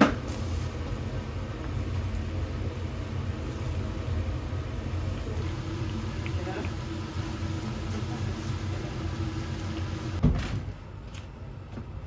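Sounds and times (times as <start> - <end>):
loud thump: 10.2 - 10.7.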